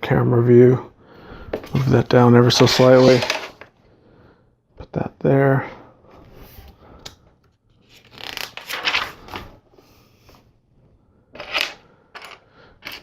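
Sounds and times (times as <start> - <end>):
plastic pieces rubbing and scraping: 2.6 - 3.6.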